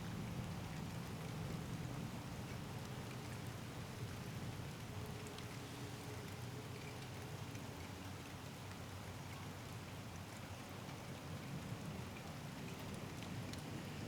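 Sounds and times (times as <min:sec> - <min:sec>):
steady rain hissing: 0:00.0 - 0:07.6, 0:10.9 - 0:14.0
raindrop ticks: 0:00.4 - 0:05.6, 0:06.2 - 0:13.7.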